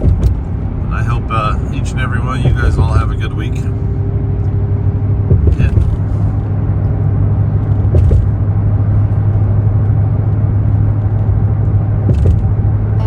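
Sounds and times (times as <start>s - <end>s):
truck driving rumble: 0.0s - 13.0s
faint knocks: 2.4s - 3.4s, 5.2s - 6.3s.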